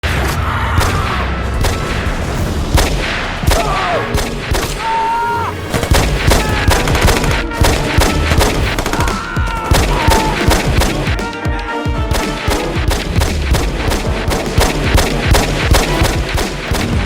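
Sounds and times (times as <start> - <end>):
rapid gunfire: 0.0 - 4.9, 5.6 - 17.0
background music: 0.0 - 17.0
machine-gun bursts: 12.1 - 17.0.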